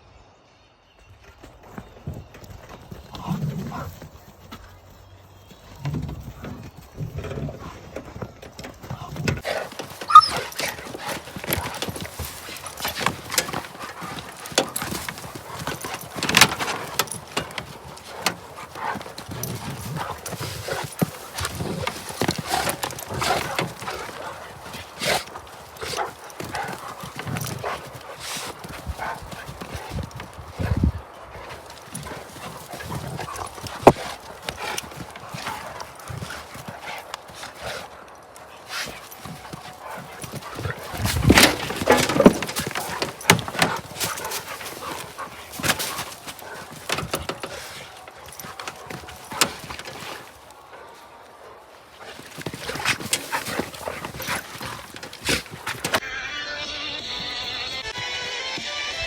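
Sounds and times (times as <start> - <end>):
dogs play-wrestling: 1.2 - 58.3
thumps of paws and bodies: 5.6 - 56.0
short dog noises: 9.4 - 30.0.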